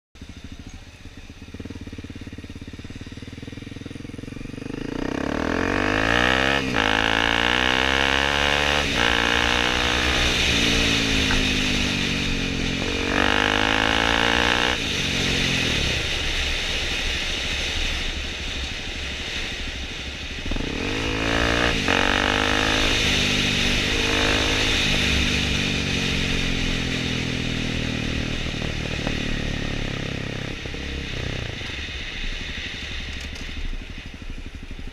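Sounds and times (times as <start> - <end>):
dirt bike engine revving: 1.3 - 16.8, 20.4 - 32.0.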